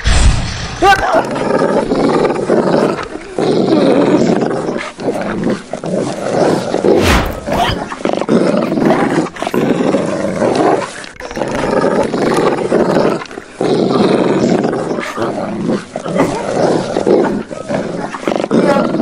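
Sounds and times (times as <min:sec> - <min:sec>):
deep rough beast growls: 0:05.9 - 0:09.0
thump: 0:07.0 - 0:07.8.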